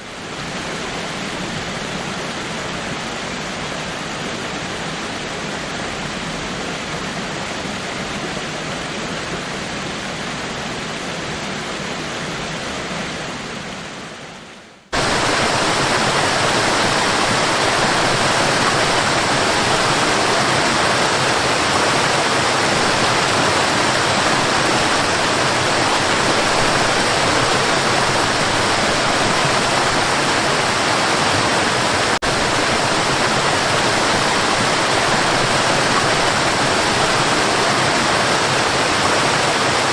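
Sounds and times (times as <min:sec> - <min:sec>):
loud waterfall: 0:00.0 - 0:39.9
waterfall rushing: 0:00.0 - 0:39.9.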